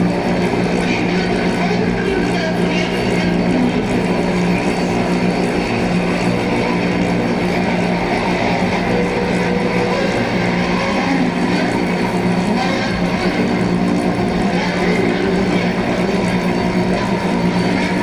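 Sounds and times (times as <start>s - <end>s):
low drone music: 0.0s - 18.0s.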